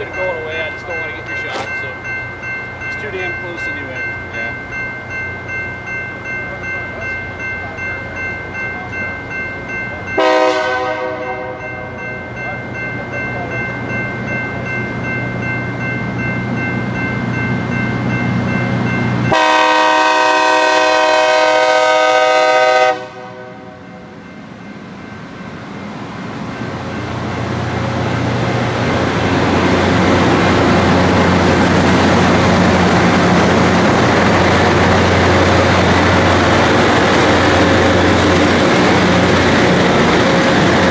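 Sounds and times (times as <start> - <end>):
train rumbling past: 0.0 - 40.9
locomotive air horn blasts: 10.2 - 11.6, 19.3 - 23.7.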